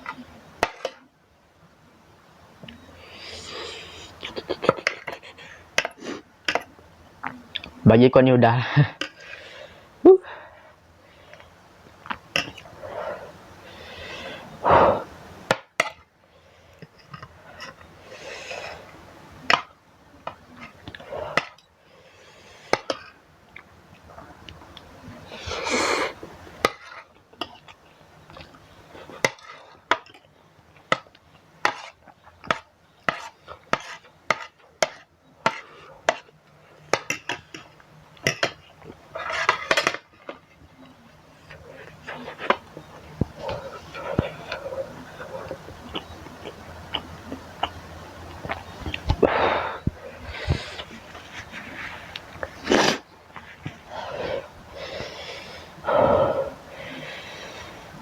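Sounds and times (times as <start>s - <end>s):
eating sounds: 2.7s - 6.2s, 35.4s - 58.0s.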